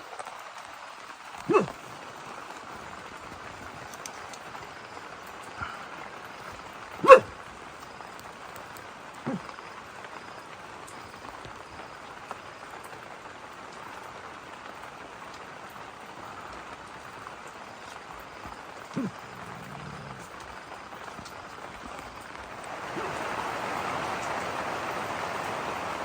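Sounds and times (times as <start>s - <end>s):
steady rain: 0.0s - 26.0s
animal call: 1.5s - 2.0s, 5.6s - 7.3s, 9.2s - 9.5s, 18.9s - 20.4s, 22.8s - 23.4s.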